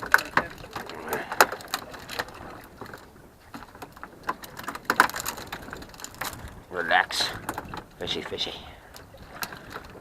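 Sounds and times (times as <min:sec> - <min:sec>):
sharp clicks and knocks: 0:00.0 - 0:06.4.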